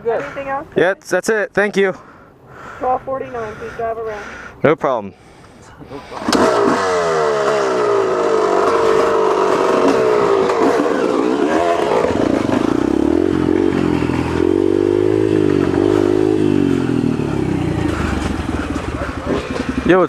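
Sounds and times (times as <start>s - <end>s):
dirt bike engine revving: 6.0s - 20.0s.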